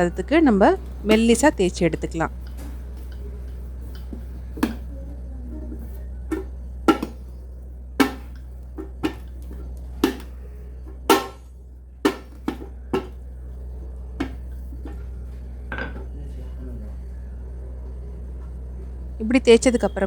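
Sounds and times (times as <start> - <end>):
low steady hum: 0.0 - 20.0
rolling pin knocking on board: 6.3 - 7.3, 8.0 - 9.3, 12.0 - 13.2.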